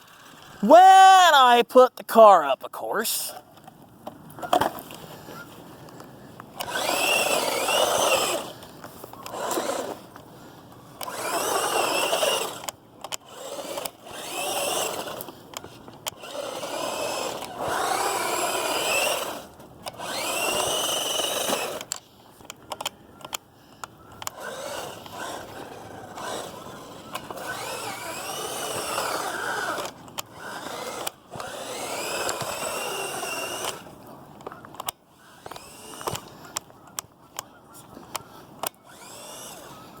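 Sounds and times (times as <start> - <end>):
electric motor whining: 6.6 - 10.3, 11.0 - 22.0, 24.2 - 34.0, 35.1 - 36.4, 38.1 - 40.0
clicks: 19.0 - 37.5.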